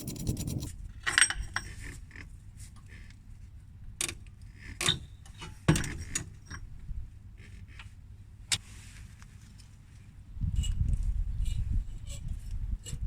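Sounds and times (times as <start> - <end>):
short metal scrape: 0.0 - 0.7.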